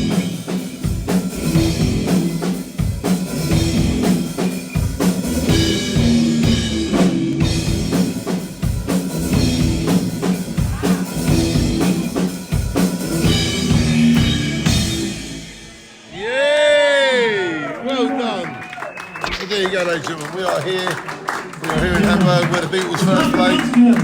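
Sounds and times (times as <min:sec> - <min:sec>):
live rock band playing: 0:00.0 - 0:16.2
drum kit beating: 0:00.0 - 0:16.4, 0:21.7 - 0:24.0.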